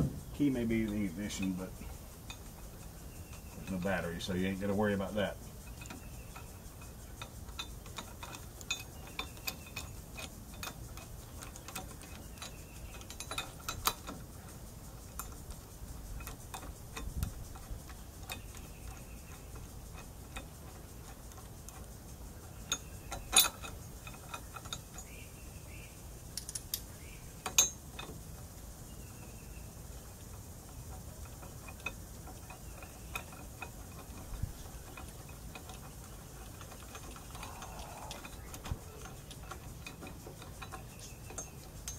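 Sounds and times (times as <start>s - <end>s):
sharp knocks: 0.0s - 0.3s
hand tools tapping on metal: 0.0s - 25.2s, 26.3s - 28.5s, 30.1s - 41.9s.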